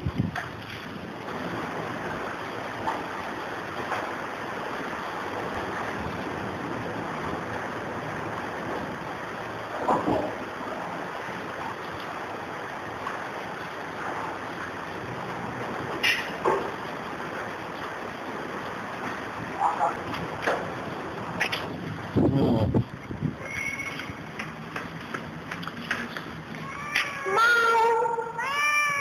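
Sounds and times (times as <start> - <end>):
heavy rain and hail: 0.0 - 29.0.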